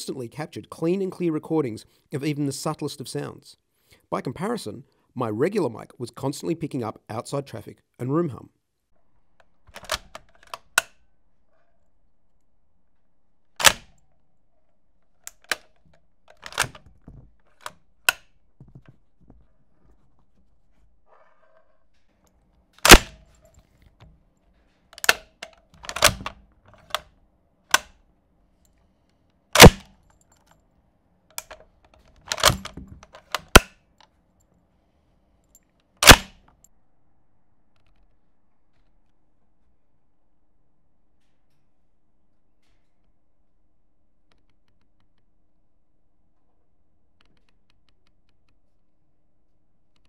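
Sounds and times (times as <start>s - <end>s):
firearm mechanism clicks: 9.4s - 11.0s, 13.6s - 14.0s, 15.0s - 18.4s, 22.8s - 24.1s, 24.9s - 27.1s, 27.7s - 28.0s, 29.6s - 30.6s, 31.3s - 33.8s, 36.0s - 36.4s
loud metallic snaps: 13.6s - 14.0s, 22.8s - 23.2s, 27.7s - 28.0s, 29.6s - 30.0s, 32.3s - 33.8s, 36.0s - 36.4s.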